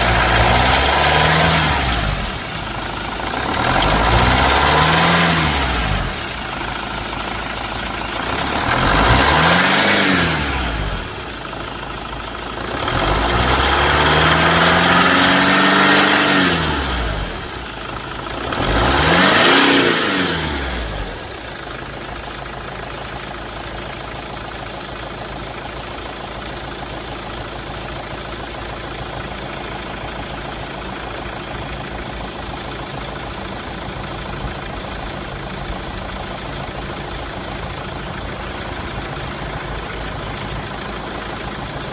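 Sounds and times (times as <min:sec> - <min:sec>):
diesel engine revving and idling: 0:00.0 - 0:41.9.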